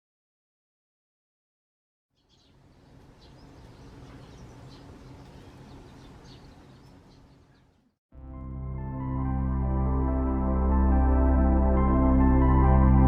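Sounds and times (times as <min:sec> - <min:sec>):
bird chirps: 0:02.1 - 0:08.0.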